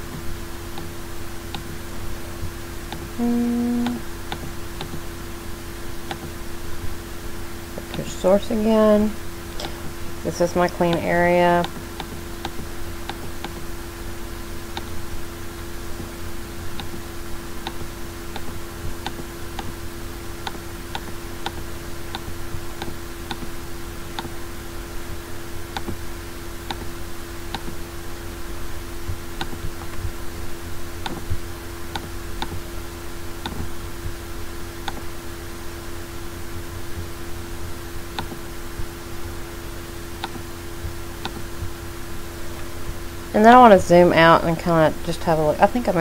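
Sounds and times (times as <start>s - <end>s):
steady hum: 0.0s - 46.0s
computer mouse clicking: 11.6s - 13.7s, 20.4s - 23.5s, 26.7s - 27.8s, 33.4s - 33.7s, 34.9s - 35.1s, 38.2s - 38.4s, 40.2s - 41.7s.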